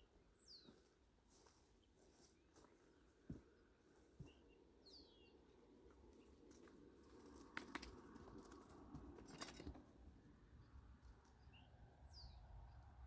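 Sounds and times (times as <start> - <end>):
bird chirp: 0.0 - 0.9, 4.1 - 6.4, 10.5 - 13.0.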